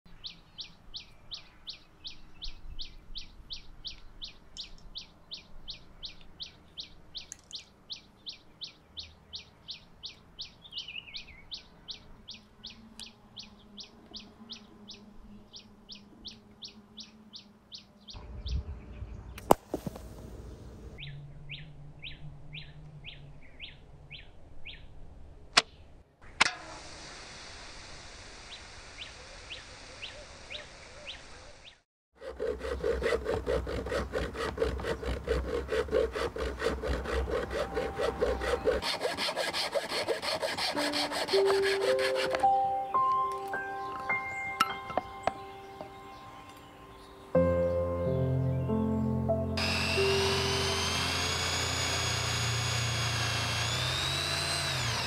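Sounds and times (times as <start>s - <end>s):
small bird chirping: 0.1s - 19.0s
sharp crack: 19.4s - 20.2s.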